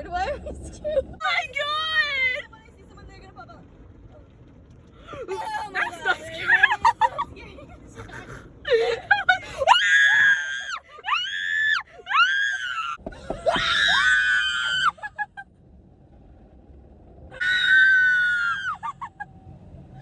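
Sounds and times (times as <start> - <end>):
girls screaming: 9.6 - 15.3, 17.4 - 19.2.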